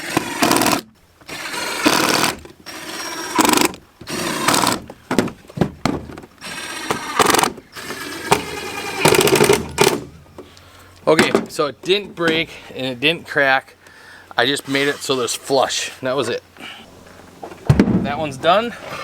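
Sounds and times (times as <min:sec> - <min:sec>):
power drill driving screw into wood: 0:00.0 - 0:04.9, 0:06.4 - 0:10.1.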